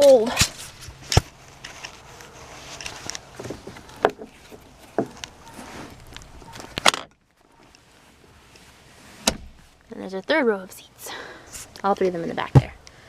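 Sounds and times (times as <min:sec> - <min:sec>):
light rustling: 0:00.0 - 0:09.9.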